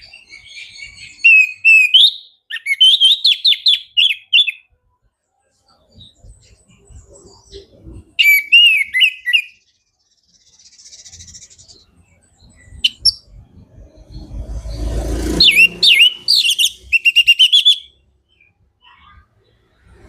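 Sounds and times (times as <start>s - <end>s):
bird singing whistled phrases: 0.0s - 4.7s, 7.0s - 9.6s, 12.5s - 13.3s, 15.4s - 19.2s.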